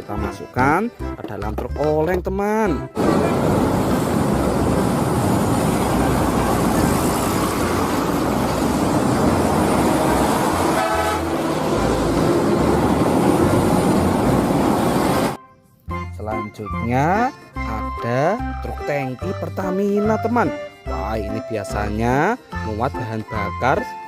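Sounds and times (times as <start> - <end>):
road noise: 2.9 - 15.9
vehicle engine: 3.0 - 15.4
short horn toot: 10.7 - 11.3.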